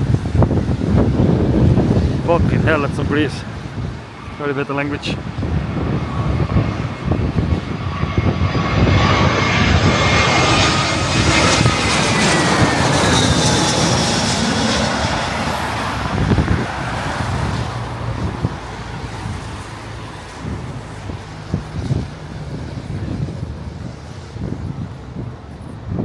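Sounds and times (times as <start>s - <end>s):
jet airliner passing overhead: 0.0s - 26.0s
wind buffeting microphone: 0.0s - 26.0s.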